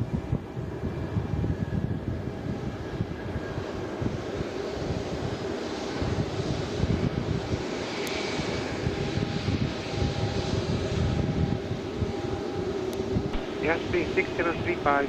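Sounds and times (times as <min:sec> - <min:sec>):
wind buffeting microphone: 0:00.0 - 0:15.0
jet engines rumbling: 0:00.5 - 0:15.0.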